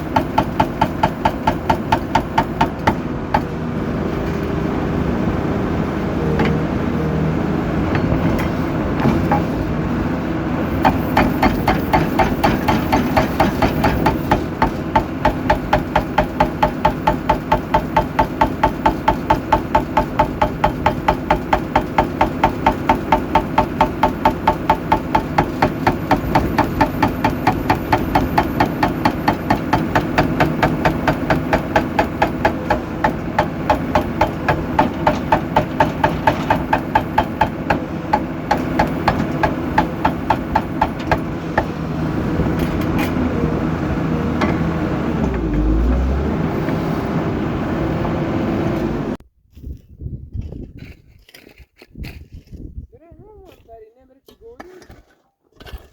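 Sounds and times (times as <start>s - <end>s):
rapid metallic hammering: 0.1s - 3.5s, 10.8s - 41.7s.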